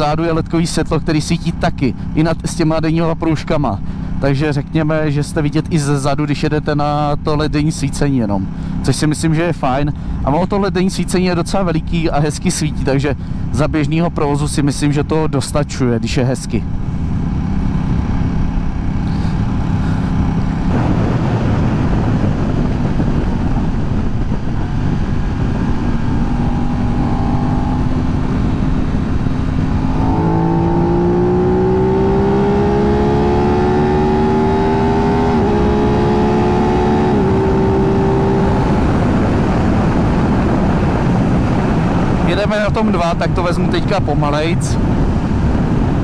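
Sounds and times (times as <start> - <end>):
motorcycle engine running: 16.4 - 43.0
wind rush on microphone: 16.7 - 46.0.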